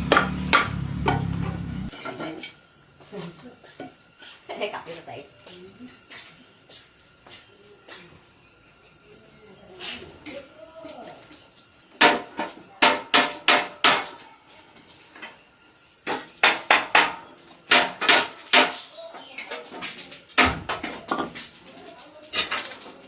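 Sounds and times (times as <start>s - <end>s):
hammer striking metal: 0.0s - 1.9s.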